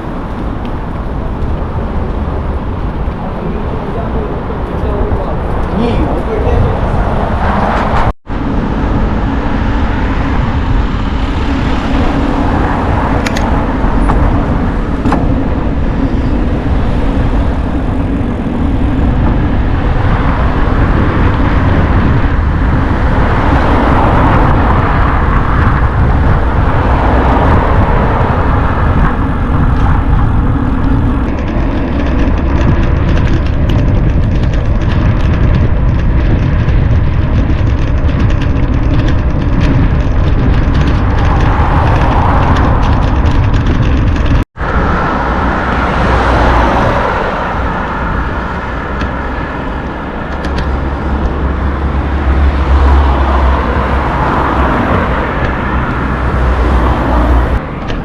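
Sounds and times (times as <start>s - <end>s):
bicycle tyres rolling: 0.0s - 58.0s
wind buffeting microphone: 0.0s - 58.0s.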